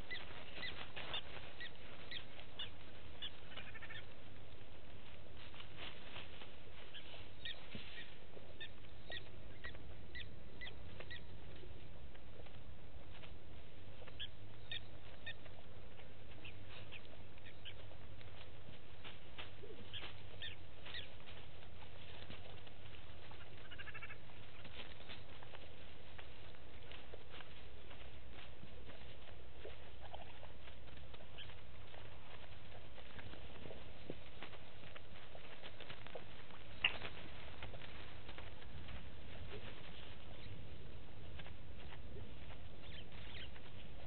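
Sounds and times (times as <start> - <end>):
birds chirping: 0.0 - 5.7, 6.4 - 44.0
steady low hum: 0.0 - 44.0.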